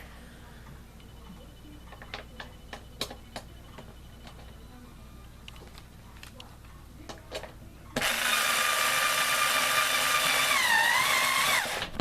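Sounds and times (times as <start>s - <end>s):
electric screwdriver motor whine: 8.0s - 12.0s.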